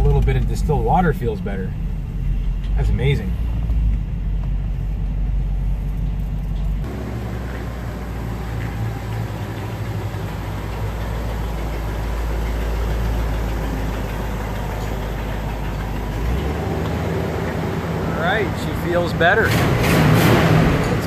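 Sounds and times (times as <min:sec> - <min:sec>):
car engine rumbling: 0:00.0 - 0:21.0.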